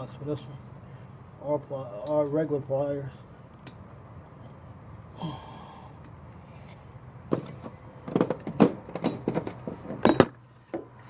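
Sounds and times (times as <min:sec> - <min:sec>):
breath-like vocal sound: 0:05.1 - 0:06.0
tools clicking and knocking: 0:07.3 - 0:10.9.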